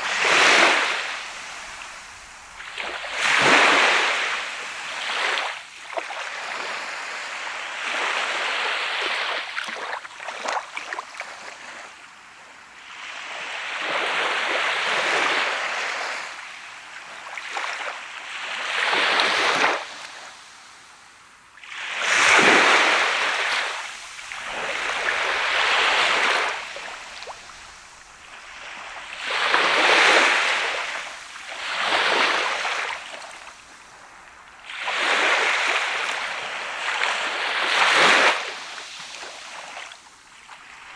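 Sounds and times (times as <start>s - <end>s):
sea waves breaking on beach: 0.0s - 11.8s, 21.7s - 40.9s.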